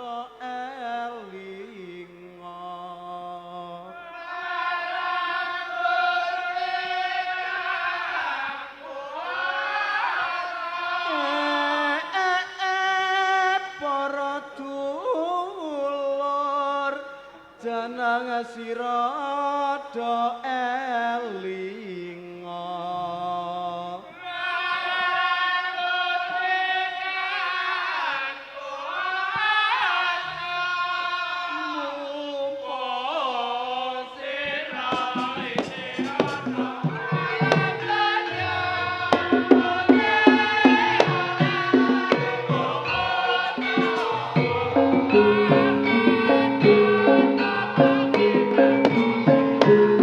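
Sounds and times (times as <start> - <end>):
solo voice singing: 0.0 - 50.0
drum strokes: 34.8 - 50.0
struck gamelan percussion: 34.8 - 50.0.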